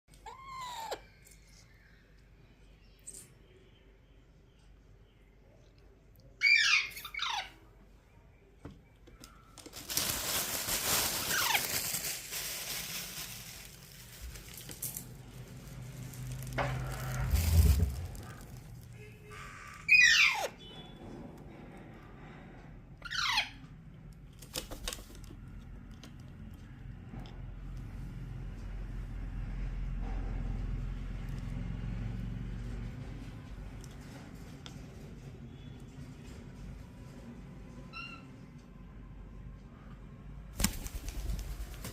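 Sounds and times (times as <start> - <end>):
background noise: 0.1 - 41.9
parrot squawking: 0.2 - 1.1, 6.4 - 7.6, 19.4 - 20.6.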